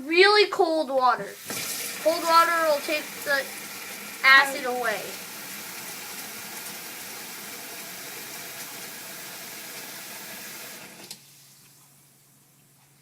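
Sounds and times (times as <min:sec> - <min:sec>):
water running into a sink: 0:01.1 - 0:11.2.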